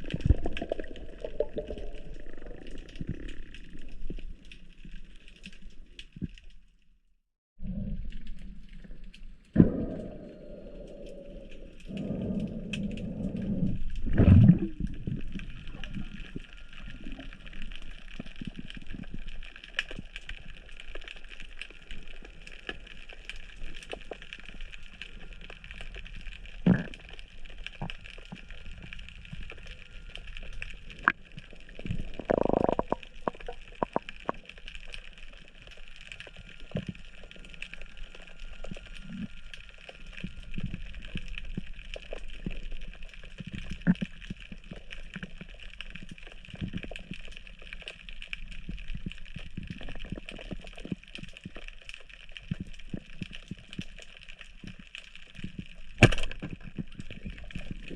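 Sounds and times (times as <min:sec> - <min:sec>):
water bubbling: 0:00.0 - 0:04.8, 0:07.6 - 0:19.4, 0:24.4 - 0:45.6
underwater hiss with crackling clicks: 0:08.2 - 0:57.9.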